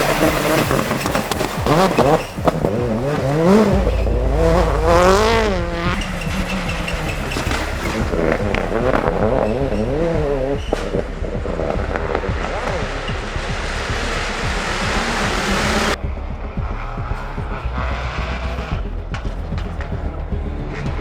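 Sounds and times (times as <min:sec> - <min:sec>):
gravel spraying: 0:00.0 - 0:16.0
exhaust crackles: 0:00.0 - 0:21.0
rally car engines revving: 0:00.0 - 0:21.0.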